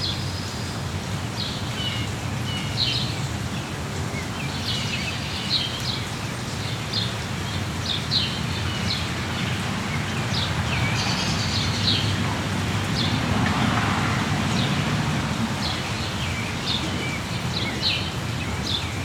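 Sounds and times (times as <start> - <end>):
birds chirping: 6.9 - 19.0
rain hissing: 7.2 - 19.0.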